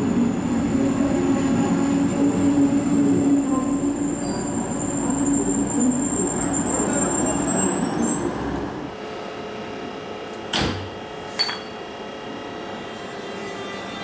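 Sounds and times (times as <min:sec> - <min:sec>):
electric locomotive hum: 0:00.0 - 0:10.2
railway coaches wheel squeal: 0:02.3 - 0:08.8, 0:12.8 - 0:14.0.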